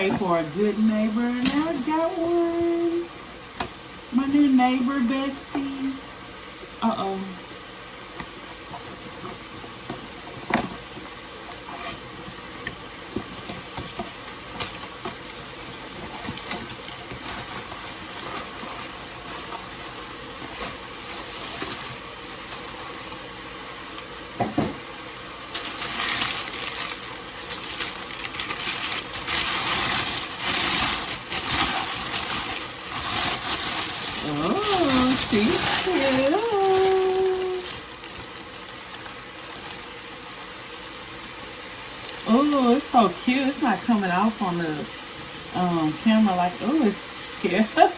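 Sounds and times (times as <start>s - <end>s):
food cooking hiss: 0.0s - 47.9s
crackling rustle: 8.2s - 24.1s, 25.4s - 42.3s.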